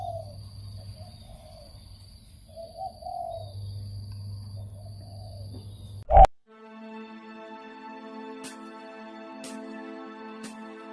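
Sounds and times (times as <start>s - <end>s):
dove cooing: 0.0s - 1.8s, 2.5s - 3.6s, 4.6s - 6.3s.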